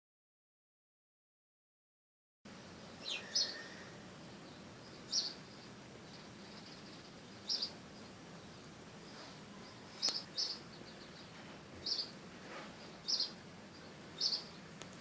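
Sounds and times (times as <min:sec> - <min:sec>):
outdoor hiss: 0:02.5 - 0:15.0
bird chirping: 0:02.9 - 0:12.2, 0:12.8 - 0:15.0.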